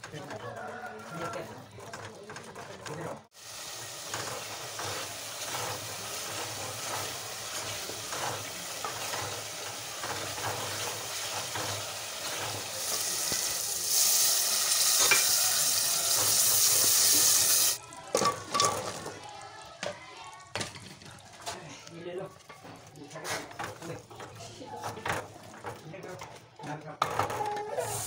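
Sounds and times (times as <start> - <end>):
wooden spoon scraping pot: 0.0 - 3.3, 4.1 - 13.5, 20.8 - 28.0
food sizzling in oil: 3.3 - 19.6, 27.8 - 28.0.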